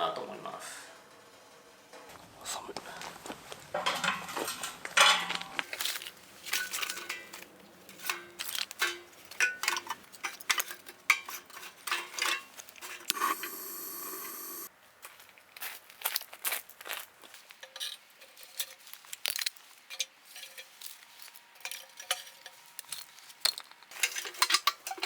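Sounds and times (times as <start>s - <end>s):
steady hiss: 13.1s - 14.7s.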